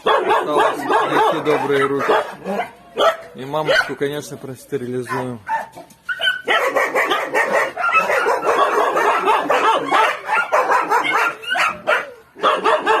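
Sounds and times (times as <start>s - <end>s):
puppies squealing and whimpering: 5.1s - 13.0s.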